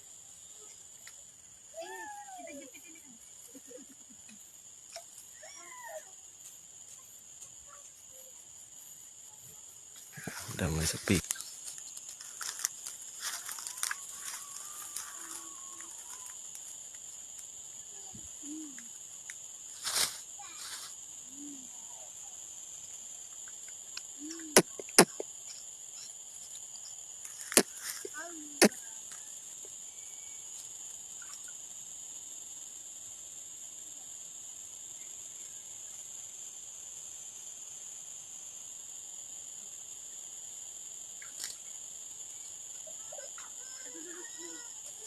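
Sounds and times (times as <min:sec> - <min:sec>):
insect chorus trilling: 0:00.0 - 0:45.0
rustling bursts: 0:19.8 - 0:20.9.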